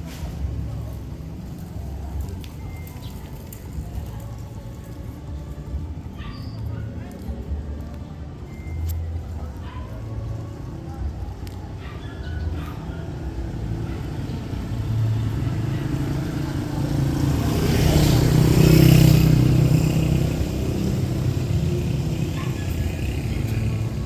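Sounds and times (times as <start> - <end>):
street noise: 0.0 - 24.0
motor vehicle passing: 12.1 - 24.0.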